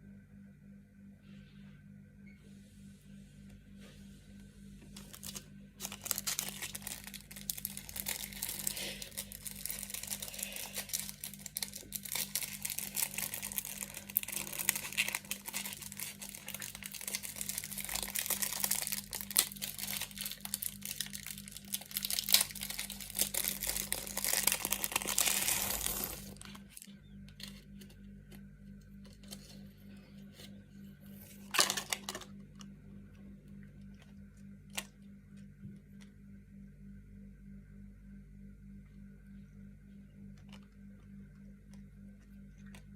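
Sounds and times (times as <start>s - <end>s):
packaging crinkling and tearing: 5.0s - 27.6s, 31.4s - 32.3s.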